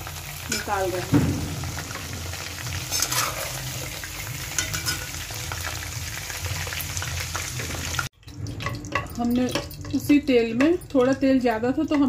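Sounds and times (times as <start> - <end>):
potatoes sizzling in hot oil: 0.0 - 8.1
metal spoon scraping a pot: 2.9 - 3.8, 4.5 - 5.2.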